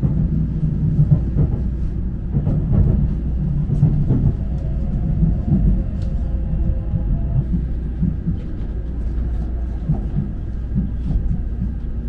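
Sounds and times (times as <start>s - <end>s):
train cabin low rumble: 0.0s - 12.0s.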